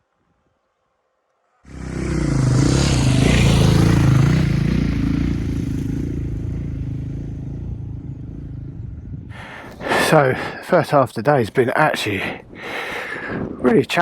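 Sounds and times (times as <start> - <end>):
motorcycle engine running: 1.7 - 9.6
wind noise: 8.0 - 10.6, 11.4 - 14.0.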